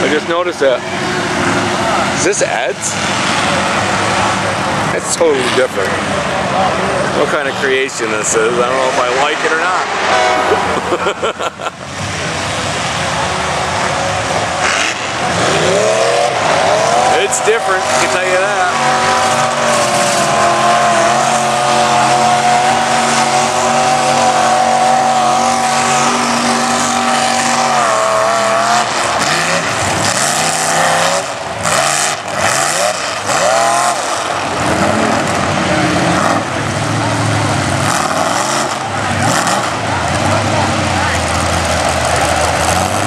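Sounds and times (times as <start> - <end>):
truck engine revving: 0.0 - 43.0.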